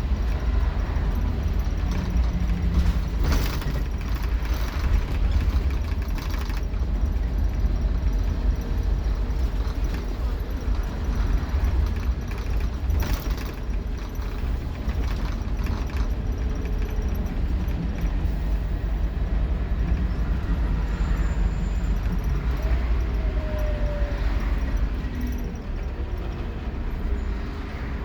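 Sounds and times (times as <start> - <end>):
bus engine rumbling: 0.0 - 28.0
rattles: 1.0 - 19.1.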